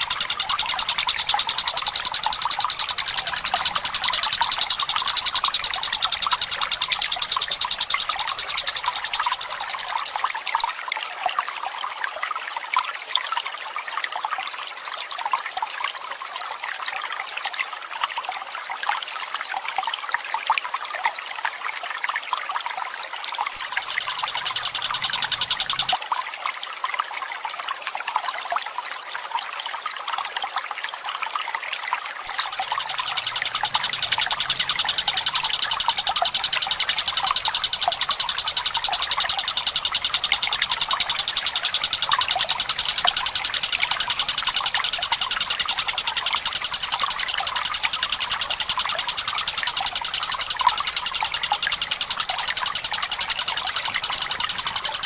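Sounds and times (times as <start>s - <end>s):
bird rapid rolling trill: 0.0s - 10.0s, 23.6s - 26.0s, 32.3s - 55.0s
water trickling: 0.0s - 16.8s, 22.1s - 26.3s, 30.8s - 55.0s.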